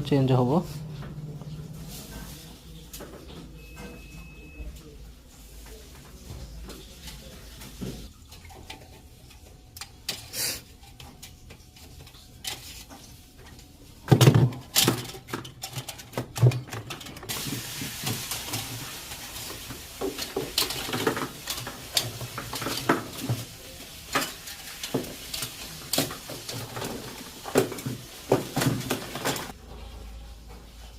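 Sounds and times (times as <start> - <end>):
steady hiss: 17.3 - 29.6.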